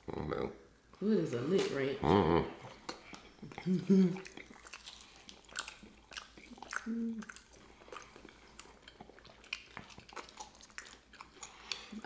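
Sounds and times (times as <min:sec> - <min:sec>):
chewing and lip smacking: 0:02.6 - 0:12.0.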